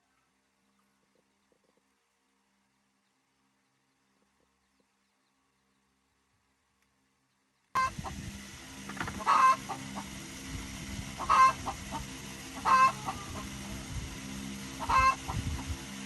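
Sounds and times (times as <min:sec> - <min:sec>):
steady low hum: 0:00.0 - 0:16.0
chicken calling: 0:07.8 - 0:08.2, 0:08.9 - 0:10.2, 0:11.1 - 0:13.7, 0:14.7 - 0:15.6.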